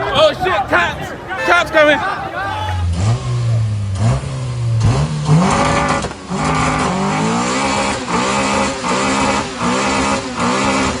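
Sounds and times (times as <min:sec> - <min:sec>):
car engine revving: 0:02.8 - 0:11.0.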